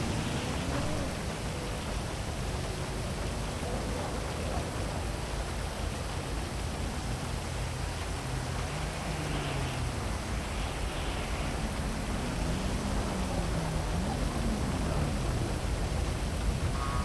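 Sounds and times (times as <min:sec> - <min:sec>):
heavy rain hissing: 0:00.0 - 0:17.0
low city rumble: 0:00.0 - 0:17.0.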